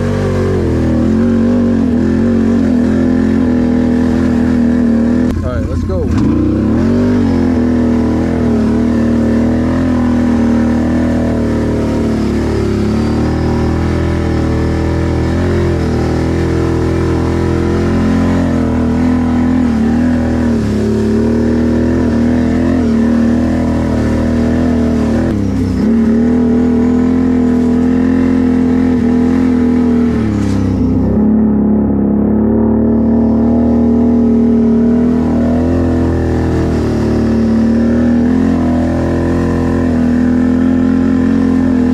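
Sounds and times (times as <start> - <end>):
atv engine revving: 0.0 - 41.9.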